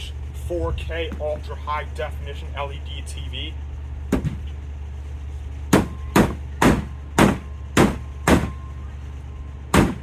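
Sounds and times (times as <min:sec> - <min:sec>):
steady low hum: 0:00.0 - 0:10.0
hard ringing knocks: 0:05.7 - 0:08.6.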